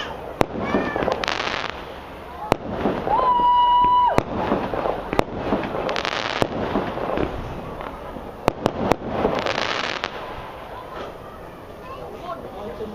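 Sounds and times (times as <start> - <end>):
firework bangs: 0.0 - 12.5
firework crackling: 0.0 - 12.9
firework whistle: 2.4 - 7.0.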